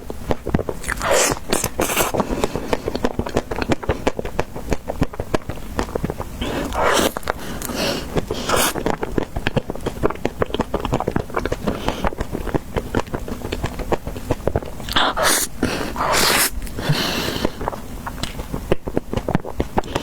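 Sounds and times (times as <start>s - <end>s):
crunching and chewing: 0.0s - 20.0s
hissy scraping: 14.9s - 17.6s.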